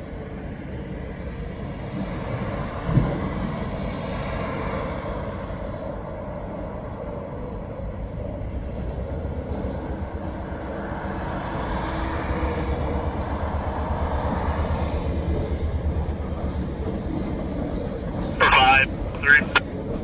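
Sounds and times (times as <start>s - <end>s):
diesel freight train rumbling: 5.3s - 20.0s.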